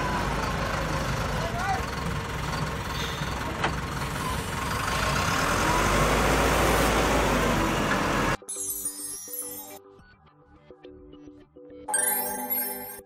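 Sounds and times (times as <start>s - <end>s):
wheel loader diesel engine: 0.0s - 8.4s.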